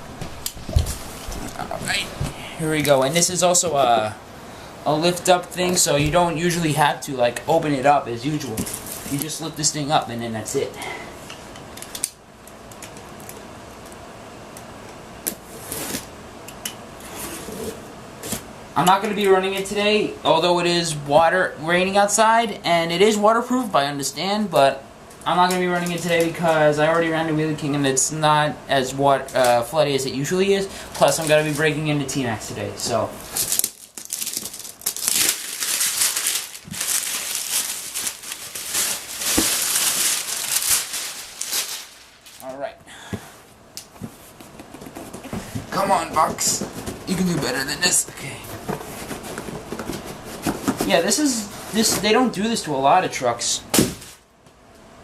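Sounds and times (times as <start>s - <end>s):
cardboard rustle: 33.2s - 42.5s, 44.0s - 52.3s.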